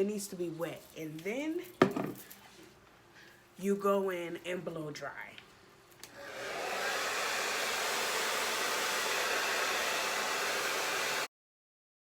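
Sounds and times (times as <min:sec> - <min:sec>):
hair dryer blowing: 0:06.0 - 0:11.3.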